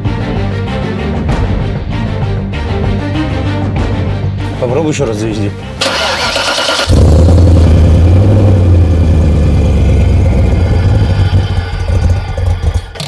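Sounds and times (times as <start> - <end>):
car engine running: 5.8 - 13.0.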